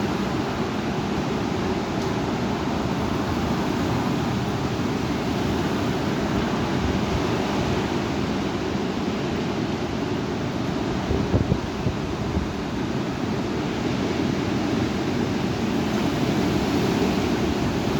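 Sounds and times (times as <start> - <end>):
heavy wind rushing: 10.7 - 12.8.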